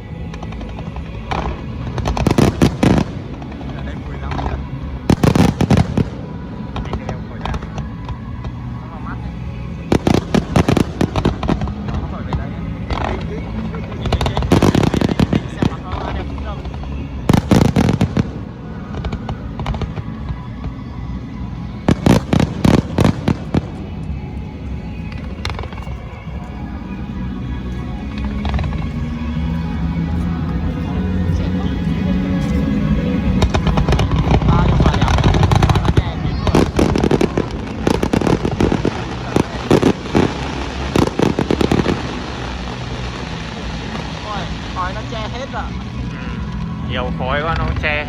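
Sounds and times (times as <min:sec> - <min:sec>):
fireworks loud bangs: 0:04.3 - 0:08.6, 0:09.9 - 0:20.1, 0:21.9 - 0:24.3, 0:30.5 - 0:45.5.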